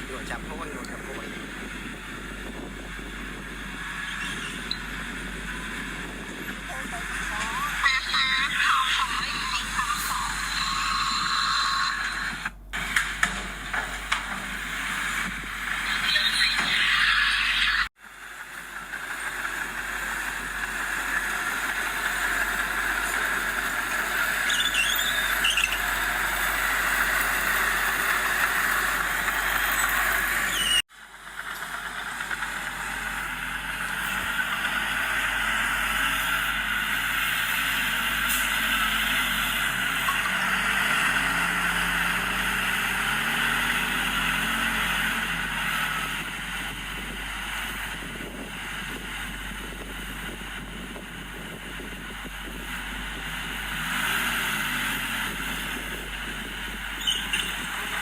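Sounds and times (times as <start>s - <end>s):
heavy diesel machinery running: 0.0s - 58.0s
high squeals: 3.7s - 5.6s, 6.3s - 12.5s, 20.6s - 30.9s, 32.1s - 46.2s, 56.8s - 58.0s.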